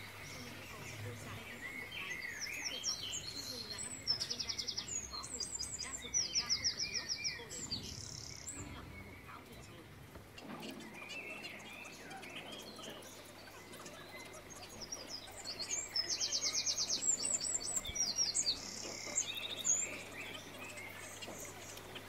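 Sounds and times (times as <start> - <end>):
birds chirping: 0.0 - 22.0
faint low hum: 0.0 - 22.0.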